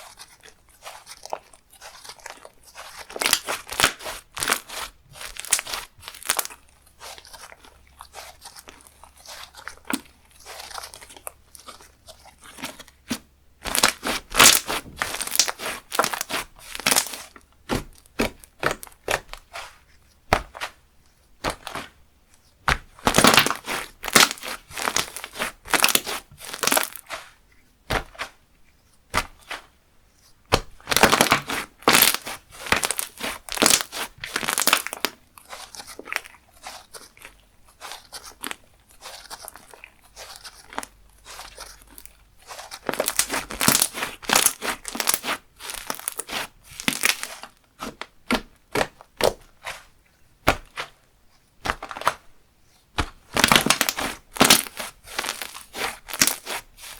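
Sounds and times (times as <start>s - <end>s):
slime squishing with sticky pops: 0.0s - 29.8s, 30.4s - 51.0s, 51.6s - 56.9s.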